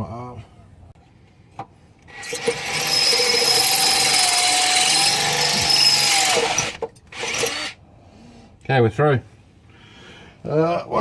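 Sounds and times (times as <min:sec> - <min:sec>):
power drill grinding through metal: 0:02.1 - 0:07.8.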